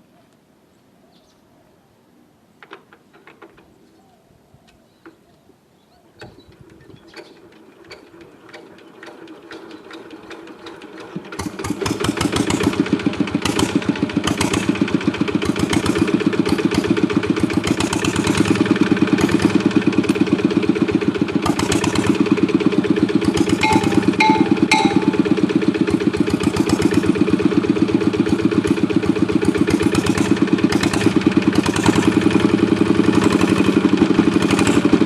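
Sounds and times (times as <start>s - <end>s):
diesel engine running: 11.1s - 35.0s.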